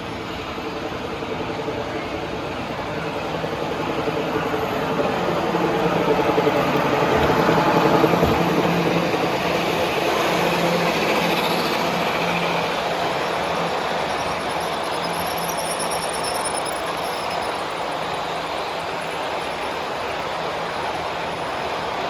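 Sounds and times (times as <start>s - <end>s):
hum of busy hall: 0.0s - 22.0s
model train motor and wheels: 6.3s - 22.0s.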